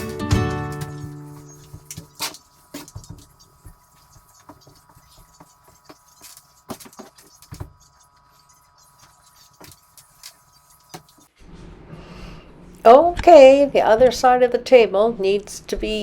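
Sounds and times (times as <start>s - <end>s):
broom sweeping floor: 0.0s - 11.6s.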